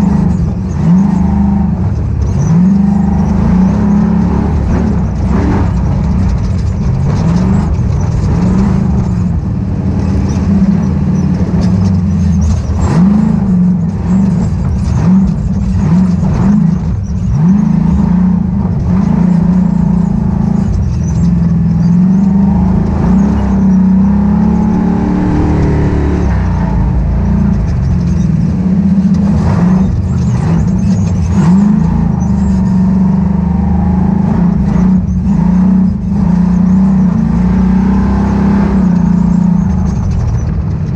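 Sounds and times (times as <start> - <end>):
race car engine revving: 0.0 - 40.9
chassis knocks and rattles: 1.8 - 31.9.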